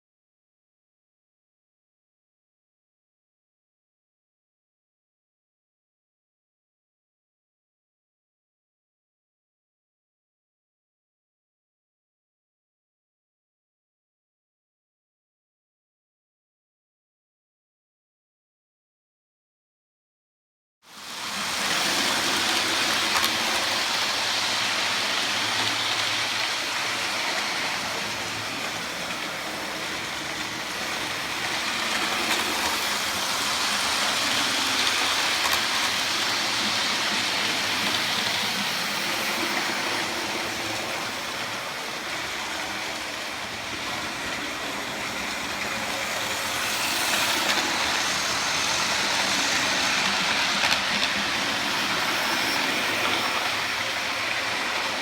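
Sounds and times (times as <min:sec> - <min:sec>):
model train rattling and whirring: 0:20.9 - 0:55.0.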